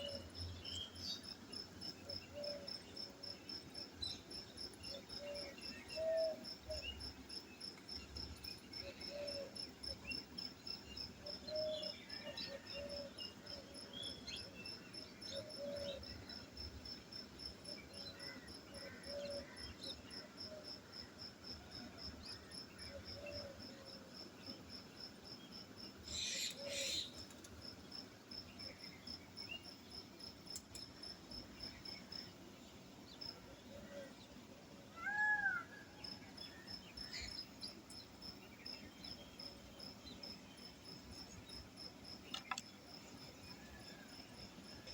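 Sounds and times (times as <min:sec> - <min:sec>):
cricket chirping: 0:00.0 - 0:44.9.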